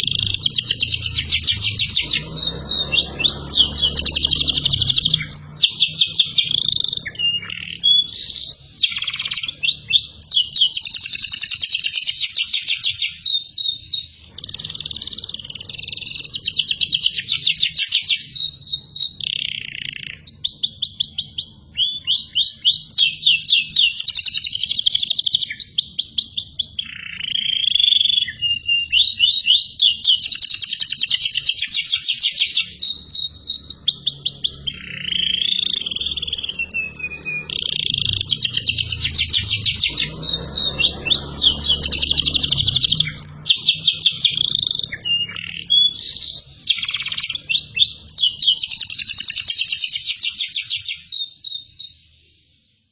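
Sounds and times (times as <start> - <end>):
canary singing trills: 0.0 - 52.9.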